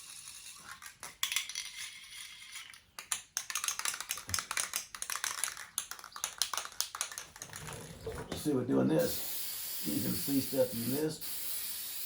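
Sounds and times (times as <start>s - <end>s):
spray can rattling: 0.0s - 12.0s
spray paint can hissing: 8.4s - 12.0s.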